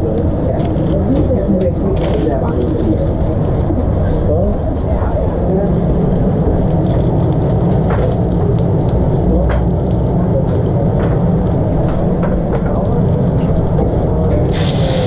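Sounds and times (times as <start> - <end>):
food sizzling and crackling: 13.0 - 15.0.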